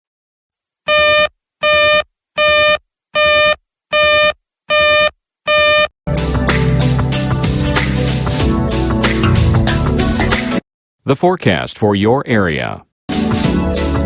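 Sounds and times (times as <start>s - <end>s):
buzzy electronic alert beeps: 0.9s - 5.9s
music: 6.1s - 10.6s, 13.1s - 14.0s.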